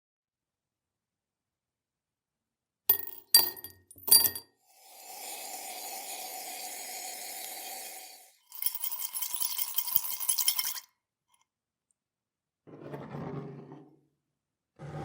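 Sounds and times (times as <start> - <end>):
metallic clinking and rattling: 2.9 - 4.4, 8.5 - 10.8.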